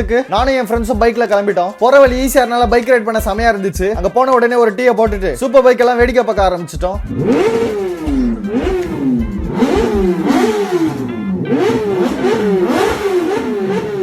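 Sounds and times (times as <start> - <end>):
motorcycle engine revving: 7.0 - 14.0.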